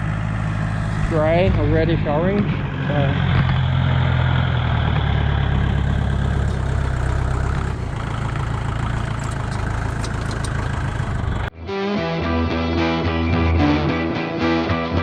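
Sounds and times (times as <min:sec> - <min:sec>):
tractor diesel engine idling: 0:00.0 - 0:11.5.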